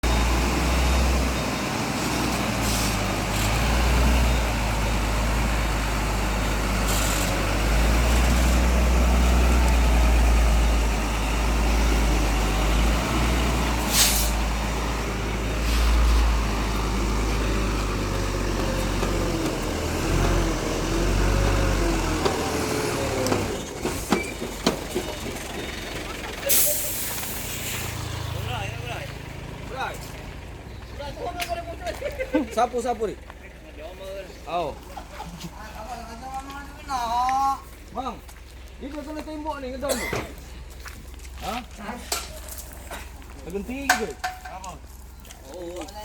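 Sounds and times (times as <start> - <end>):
truck diesel engine rumbling: 0.0 - 46.0
air brake hisses: 2.6 - 3.1, 13.8 - 14.4, 26.5 - 28.0.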